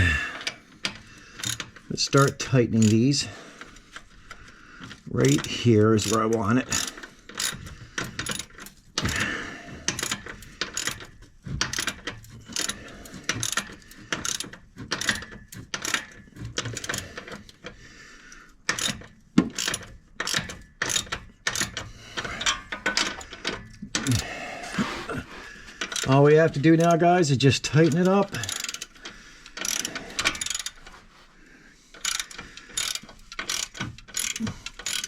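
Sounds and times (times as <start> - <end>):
ratchet wrench clicking: 0.4 - 3.8, 4.9 - 9.3, 9.9 - 17.6, 18.7 - 24.2, 25.8 - 26.2, 27.8 - 30.9, 32.0 - 35.0.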